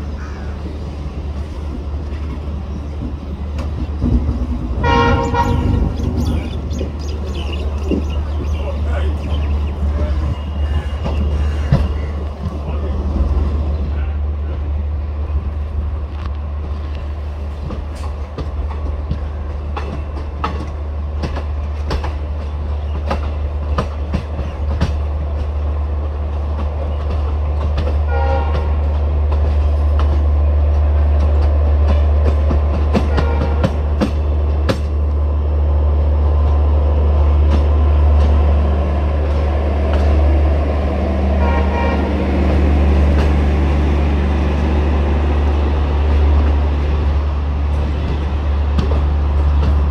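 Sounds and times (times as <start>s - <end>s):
train rumbling with wheel clicks: 0.0s - 49.9s
train horn toot: 4.8s - 6.0s, 28.1s - 28.9s, 33.0s - 33.8s, 41.4s - 42.3s.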